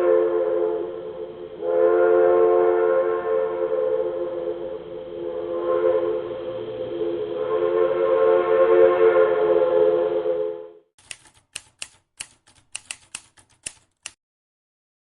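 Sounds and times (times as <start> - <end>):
train horn chord: 0.0 - 10.9
sharp clicks: 11.0 - 14.2.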